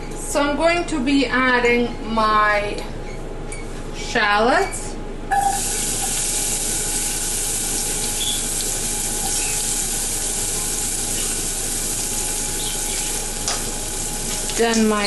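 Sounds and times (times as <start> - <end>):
onion sizzling in hot oil: 5.4 - 15.0.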